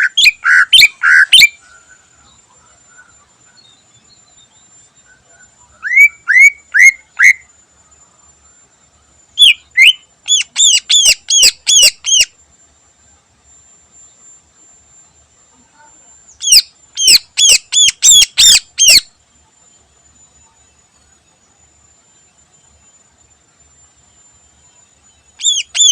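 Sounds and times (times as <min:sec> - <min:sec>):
bird singing sharp arched notes: 0:25.4 - 0:25.9.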